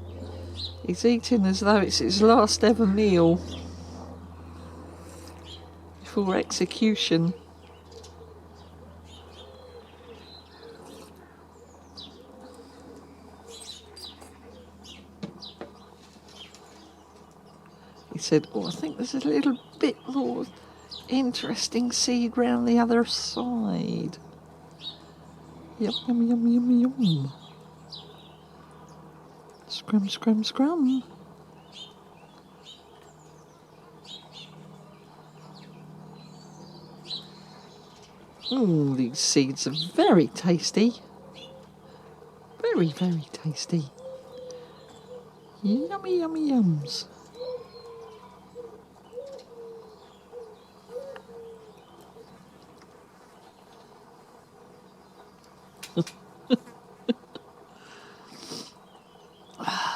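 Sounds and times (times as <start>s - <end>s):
birds chirping: 0.0s - 59.9s
low steady hum: 0.0s - 59.9s
low wavering cooing calls: 6.8s - 15.9s, 41.1s - 43.0s, 43.8s - 54.9s.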